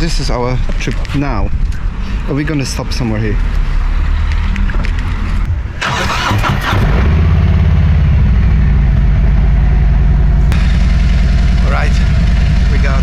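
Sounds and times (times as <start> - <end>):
motorcycle engine cranking: 5.8 - 7.2
another engine running: 5.8 - 13.0
motorcycle engine idling: 6.8 - 13.0.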